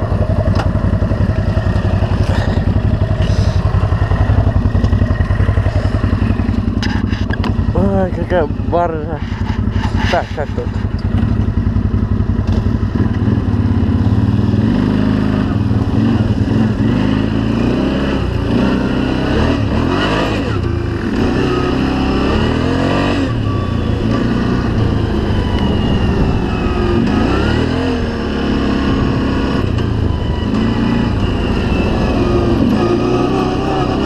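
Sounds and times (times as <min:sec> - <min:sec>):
off-road vehicle engine revving: 0:00.0 - 0:34.0.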